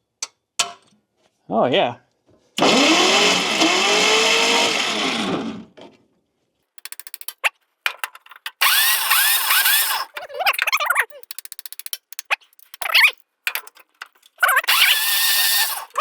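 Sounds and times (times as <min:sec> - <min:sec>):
electric starter cranking engine: 0:02.6 - 0:05.7, 0:08.5 - 0:10.2, 0:14.6 - 0:16.0
ratchet-like clicks: 0:06.8 - 0:16.0.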